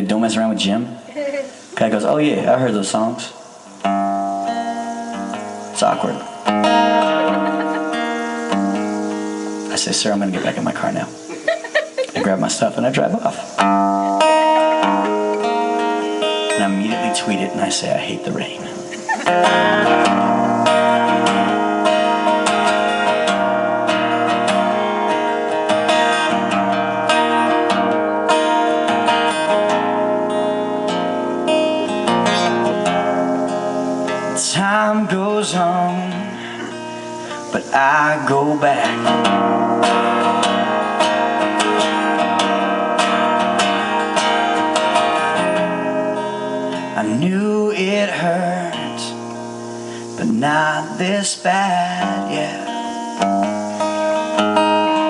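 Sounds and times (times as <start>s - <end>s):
acoustic guitar strumming: 0.0s - 55.0s
person singing: 31.8s - 32.7s, 46.9s - 49.2s, 50.2s - 53.0s.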